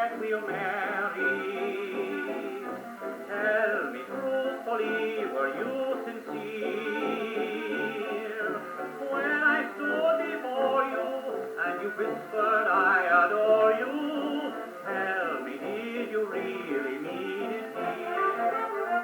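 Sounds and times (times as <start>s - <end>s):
dance band record on phonograph: 0.0s - 19.0s.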